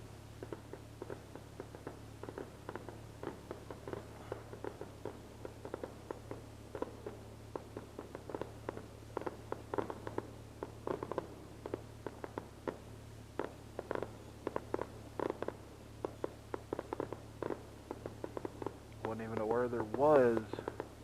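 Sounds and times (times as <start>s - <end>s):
distant fireworks popping: 0.0s - 21.0s
steady low hum: 0.0s - 21.0s.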